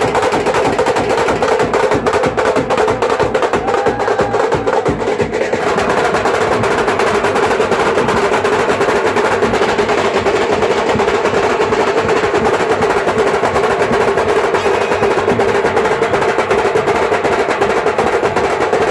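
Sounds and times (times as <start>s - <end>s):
fast drum rolls: 0.0s - 18.9s
loud band music: 14.4s - 16.4s.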